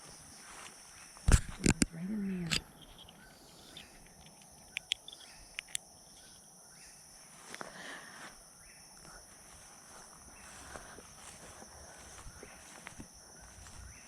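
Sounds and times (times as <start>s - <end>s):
insects trilling: 0.0s - 14.0s
sharp clicks: 1.2s - 6.3s.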